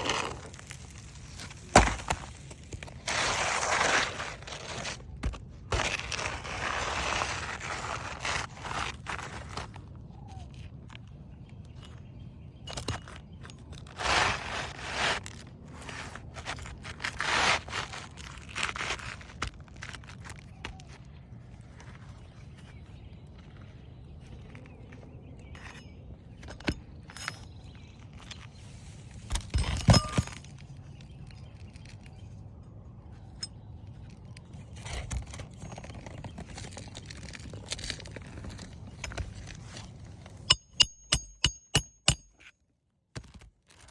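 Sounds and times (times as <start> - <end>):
roof shingles scraping and crunching: 0.0 - 9.9, 13.1 - 24.8, 34.0 - 40.5
metal tools striking shingles: 29.3 - 30.5, 40.4 - 42.5.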